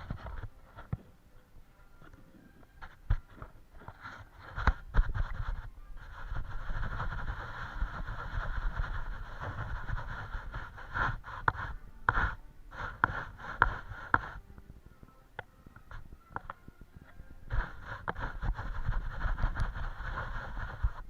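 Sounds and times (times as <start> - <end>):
paintbrush scrubbing and scraping: 2.8 - 14.4, 17.4 - 21.0.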